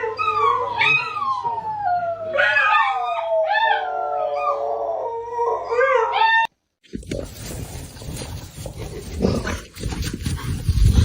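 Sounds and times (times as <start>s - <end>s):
dog howling: 0.0s - 6.5s.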